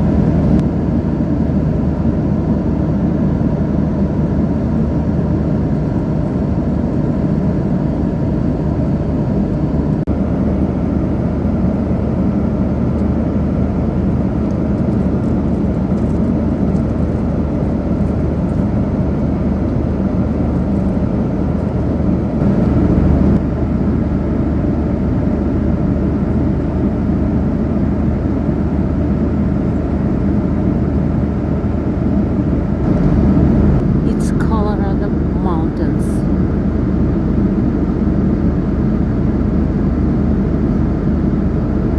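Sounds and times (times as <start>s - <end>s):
vehicle cabin rumble: 0.0s - 0.9s, 5.7s - 23.7s, 29.6s - 41.9s.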